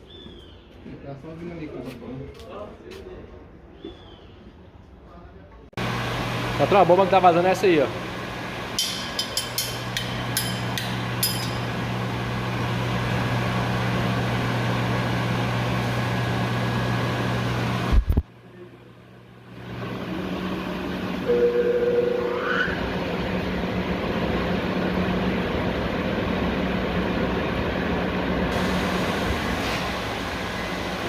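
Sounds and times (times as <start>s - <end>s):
pump motors humming: 5.8s - 18.0s, 19.4s - 31.0s
steady high tone: 21.2s - 23.1s.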